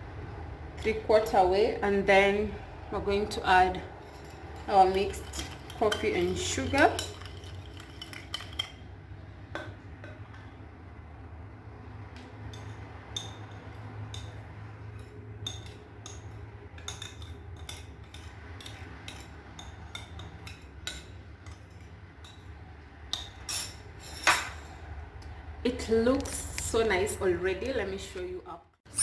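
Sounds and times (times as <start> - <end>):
metal spoon clinking against glass: 4.0 - 8.8.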